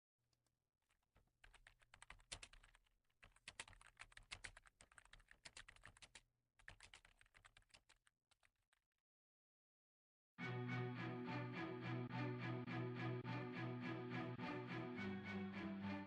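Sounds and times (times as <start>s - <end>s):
typing on computer keyboard: 0.9s - 8.7s.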